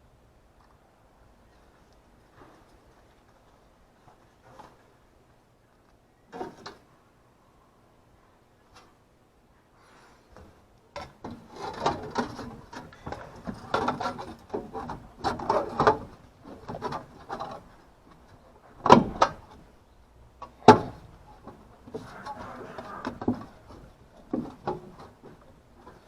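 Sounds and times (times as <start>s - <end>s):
parts clattering and scraping: 10.4s - 19.6s.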